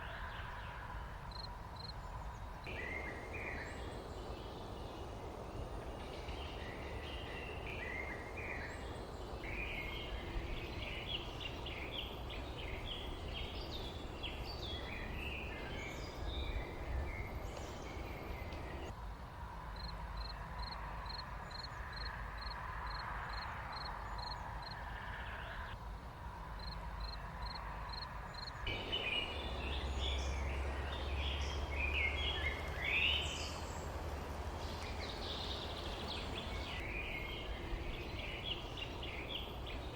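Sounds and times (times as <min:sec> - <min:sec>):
songbirds chirping: 0:00.0 - 0:39.9
low background rumble: 0:28.6 - 0:39.9.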